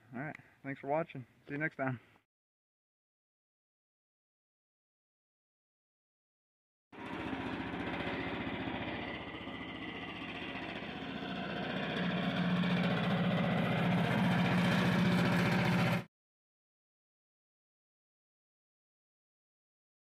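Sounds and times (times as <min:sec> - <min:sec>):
engine running: 0:07.0 - 0:16.1.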